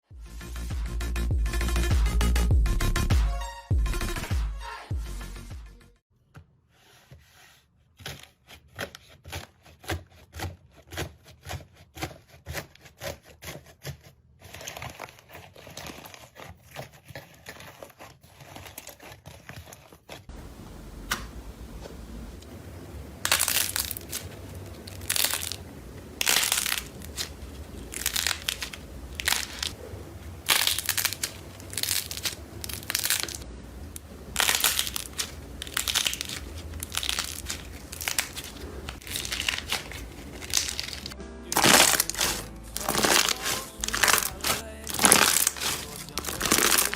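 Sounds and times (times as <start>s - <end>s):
crunchy slime crackling: 23.2s - 46.9s.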